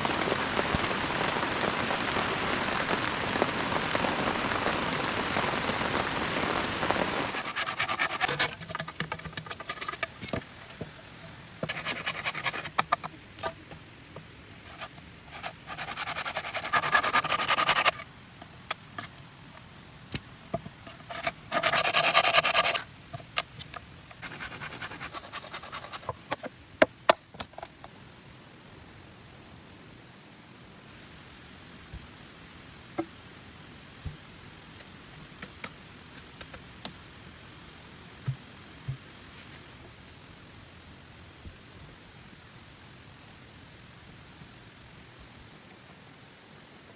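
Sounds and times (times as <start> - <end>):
rain falling: 0.0 - 7.4
rapid scraping strokes: 7.2 - 13.7, 14.6 - 18.0, 20.8 - 22.9, 24.2 - 26.4.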